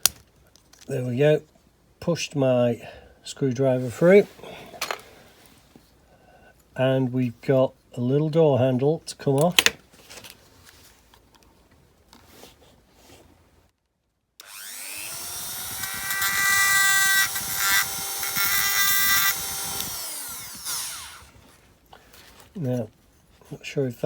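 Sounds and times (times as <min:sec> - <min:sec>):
power drill whining: 0:14.4 - 0:21.5.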